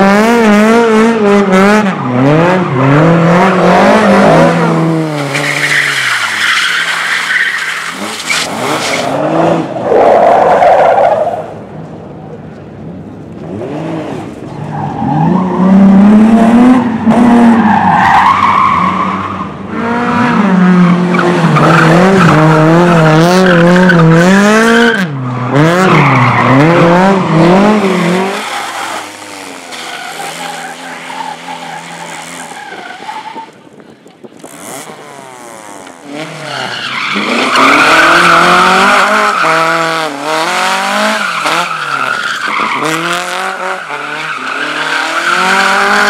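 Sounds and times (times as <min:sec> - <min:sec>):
race car engine revving: 0:00.0 - 0:09.8, 0:18.6 - 0:33.0, 0:34.4 - 0:46.0.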